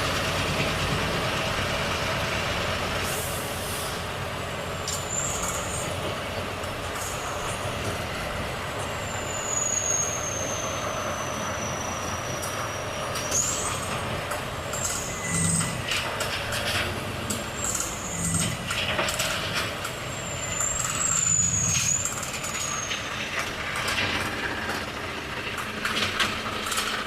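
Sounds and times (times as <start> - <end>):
truck diesel engine running: 0.0 - 27.0.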